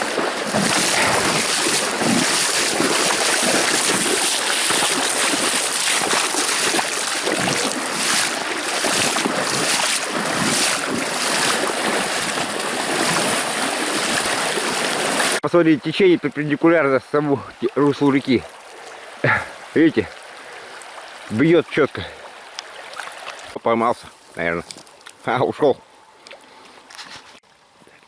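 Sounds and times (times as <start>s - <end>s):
river water rushing: 0.0s - 15.4s.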